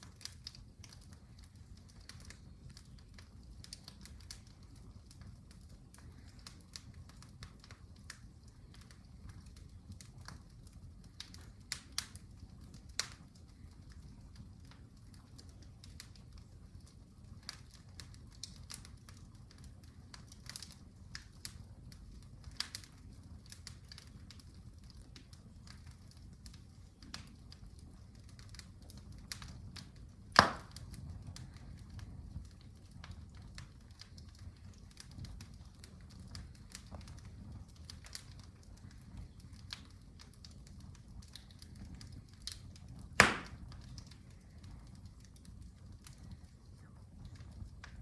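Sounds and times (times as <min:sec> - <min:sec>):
wood fire crackling: 0:00.0 - 0:48.0
sharp loud pop: 0:30.4 - 0:30.7, 0:43.2 - 0:43.6.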